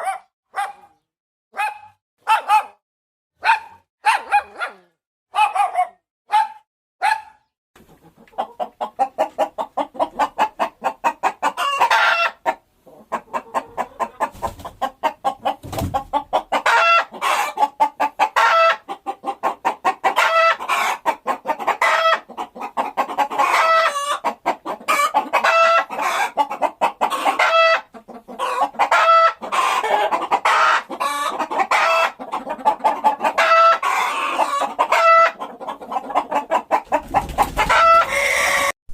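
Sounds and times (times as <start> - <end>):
dog barks: 0.0 - 2.8, 3.4 - 7.5
chickens clucking and cackling: 7.8 - 38.8.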